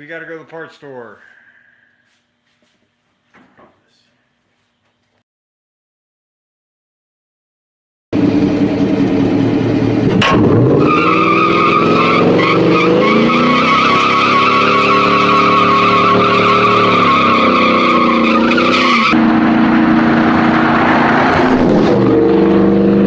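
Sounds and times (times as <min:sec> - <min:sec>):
car engine at high revs: 0:08.2 - 0:23.0
tyres squealing: 0:10.8 - 0:19.2.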